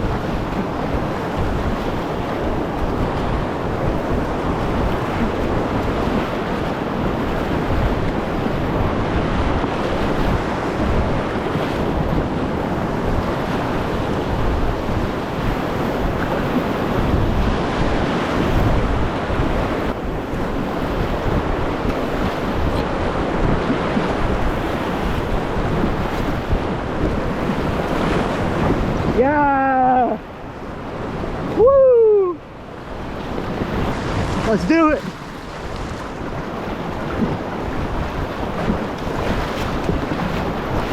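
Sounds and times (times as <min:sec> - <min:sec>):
wind buffeting microphone: 0:00.0 - 0:40.9
rushing river rapids: 0:27.8 - 0:40.9.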